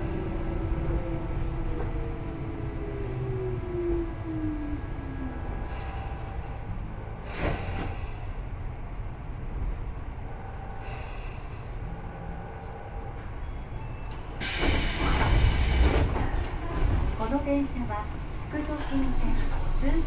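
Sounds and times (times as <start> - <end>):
train low rumble: 0.0 - 20.0
loud compressed air hiss: 14.4 - 15.9.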